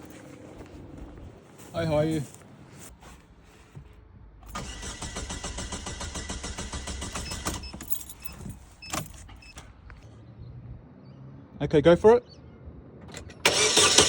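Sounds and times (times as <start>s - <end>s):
engine cranking on starter: 4.4s - 7.8s, 13.1s - 14.0s.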